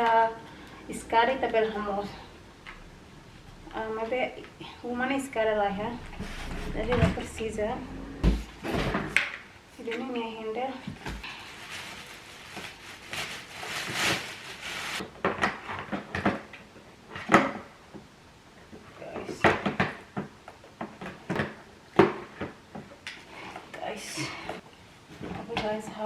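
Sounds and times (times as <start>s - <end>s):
rustling and scraping: 5.7s - 10.2s, 10.8s - 15.0s.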